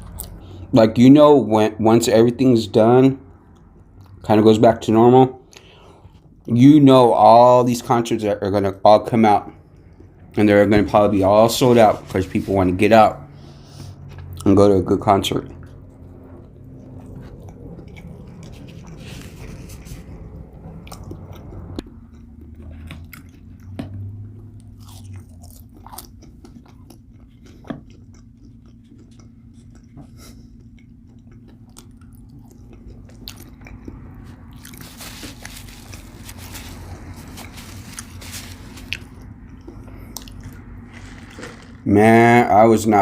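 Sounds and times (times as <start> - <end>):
person chewing food: 15.5 - 41.9.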